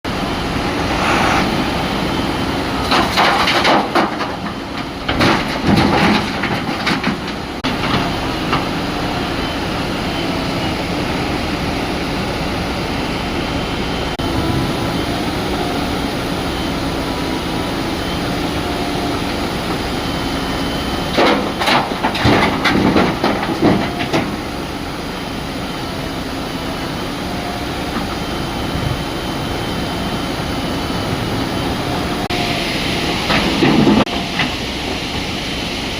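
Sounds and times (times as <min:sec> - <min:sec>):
diesel engine running: 0:00.0 - 0:35.9
boulders crashing into steel tipper: 0:05.1 - 0:08.1.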